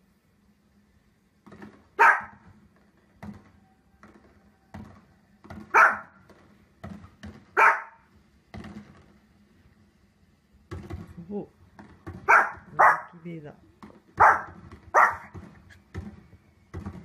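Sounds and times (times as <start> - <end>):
dull thumps: 1.4 - 9.4, 10.6 - 12.9, 13.6 - 17.0
small dog barking: 2.0 - 2.4, 5.7 - 6.2, 7.5 - 8.1, 12.2 - 13.2, 14.2 - 15.3.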